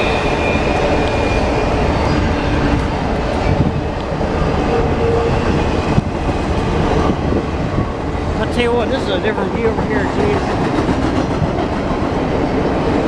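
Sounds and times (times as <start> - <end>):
faint high squeal: 0.0 - 2.8
train wheels rumbling on rails: 0.0 - 13.0.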